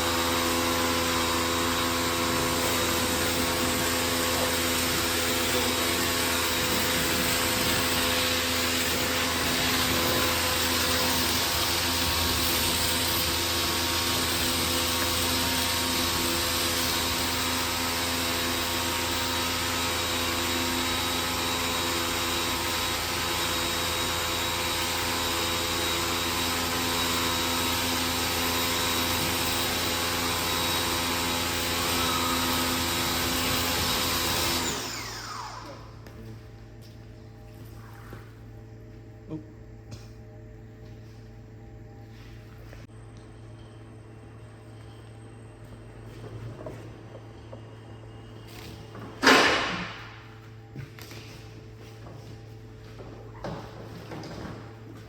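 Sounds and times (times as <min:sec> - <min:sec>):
machine motor droning with hiss: 0:00.0 - 0:36.0.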